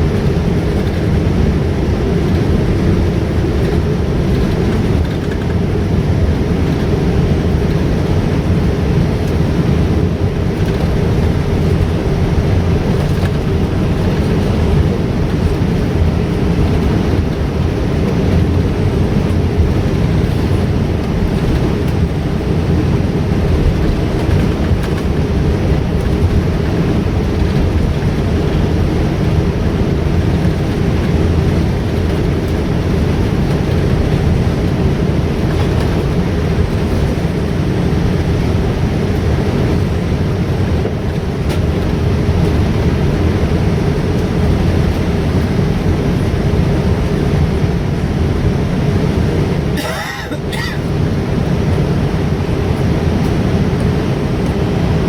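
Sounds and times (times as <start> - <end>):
jet airliner cabin rumble: 0.0 - 55.0.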